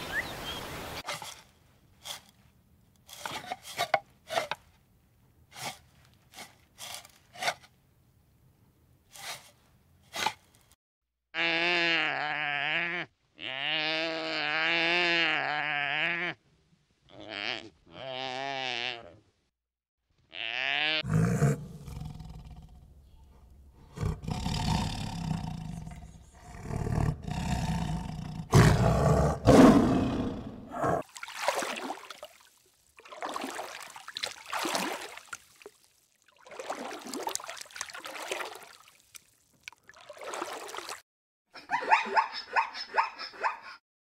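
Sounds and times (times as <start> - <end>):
animal roaring calls: 20.6 - 31.0.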